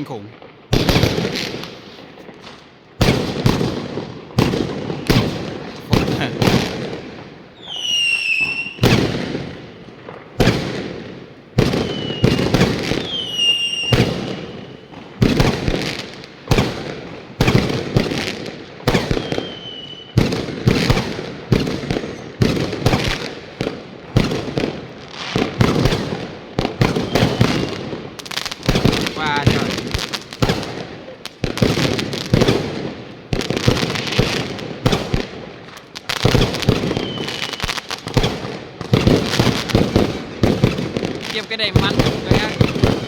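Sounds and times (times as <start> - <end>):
fireworks bangs: 0.0 - 43.0
whistling firework shells: 7.5 - 10.8, 11.6 - 17.8, 18.8 - 23.3, 26.8 - 28.0, 36.2 - 43.0.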